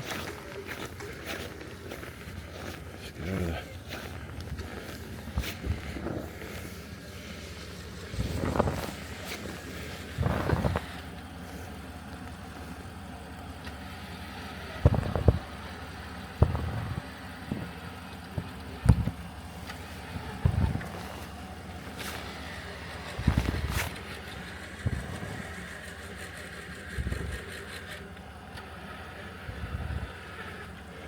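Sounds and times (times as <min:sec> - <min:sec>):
knocks and crunches: 0:00.0 - 0:11.0, 0:16.4 - 0:24.0
vehicle engine idling: 0:00.0 - 0:31.0.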